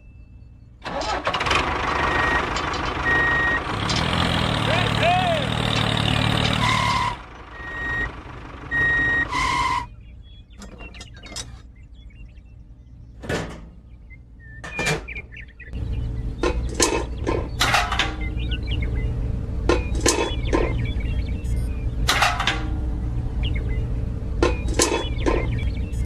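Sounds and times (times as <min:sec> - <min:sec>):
low steady hum: 0:00.0 - 0:01.4, 0:06.8 - 0:26.0
toy electronic beeps: 0:03.0 - 0:03.6, 0:07.5 - 0:08.1, 0:08.7 - 0:09.9
clicks and knocks of small parts: 0:10.6 - 0:11.7, 0:16.4 - 0:18.3, 0:19.7 - 0:20.9, 0:22.0 - 0:22.8, 0:24.4 - 0:25.6.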